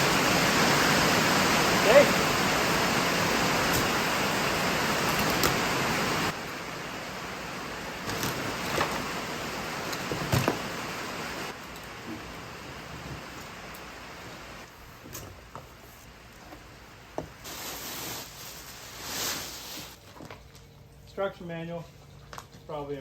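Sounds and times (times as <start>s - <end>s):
rain falling: 0.0s - 14.7s.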